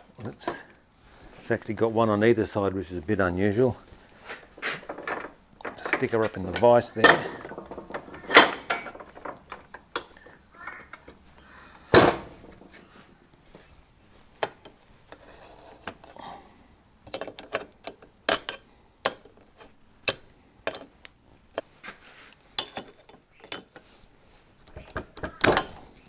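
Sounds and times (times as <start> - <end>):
knocks and clicks of metal tools: 4.5 - 11.2
loud metal clank: 4.8 - 9.6.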